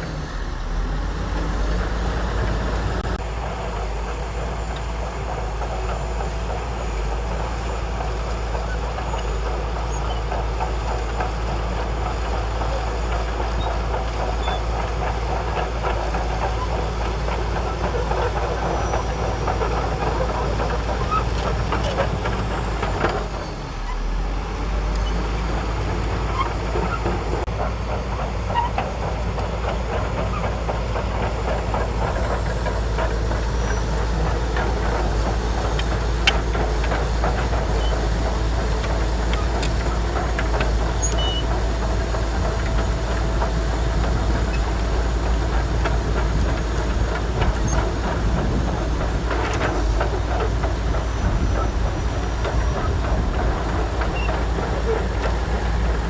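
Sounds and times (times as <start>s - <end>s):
bulldozer diesel engine running: 0.0s - 56.0s
steel tracks rattling: 1.2s - 56.0s.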